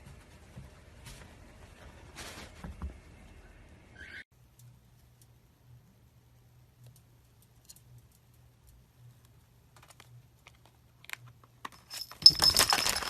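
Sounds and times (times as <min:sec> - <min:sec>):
faint clicks and ticks: 0:04.4 - 0:06.0, 0:06.6 - 0:11.6.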